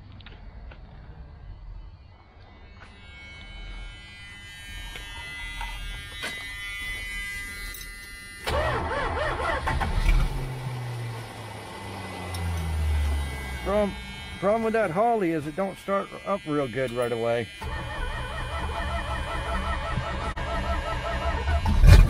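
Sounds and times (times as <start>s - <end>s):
engine starter whine: 2.1s - 22.0s
car engine starting and running: 8.4s - 15.4s, 17.6s - 22.0s.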